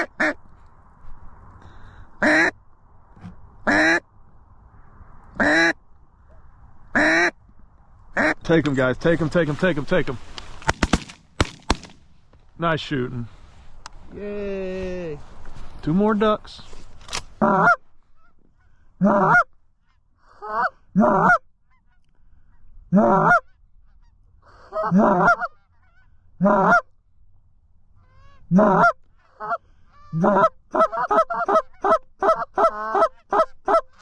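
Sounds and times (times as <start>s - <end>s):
goose honking: 0.0s - 0.4s, 2.2s - 2.6s, 3.6s - 4.0s, 5.4s - 5.8s, 6.9s - 7.4s, 17.4s - 22.0s, 22.9s - 26.9s, 28.0s - 34.0s
goose clucking rapidly: 24.6s - 26.9s, 28.0s - 34.0s.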